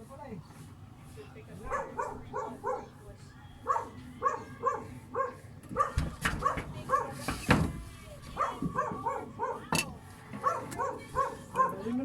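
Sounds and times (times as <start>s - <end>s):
dog barking: 1.7s - 3.0s, 3.6s - 7.2s, 8.4s - 9.7s, 10.4s - 12.0s.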